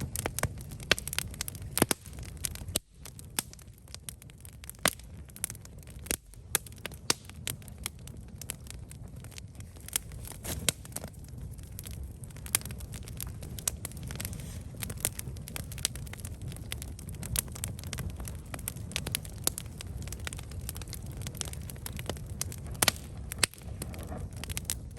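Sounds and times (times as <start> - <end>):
campfire crackling and popping: 0.0 - 24.9
low rumble of flames: 0.0 - 24.9.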